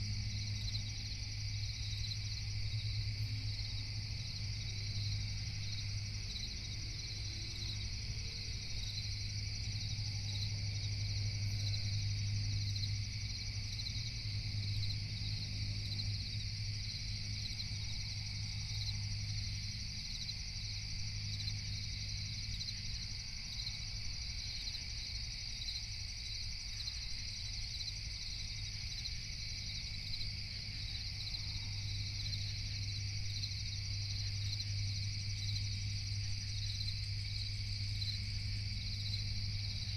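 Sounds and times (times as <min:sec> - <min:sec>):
constant low hum: 0:00.0 - 0:39.9
crickets chirping: 0:00.0 - 0:39.9.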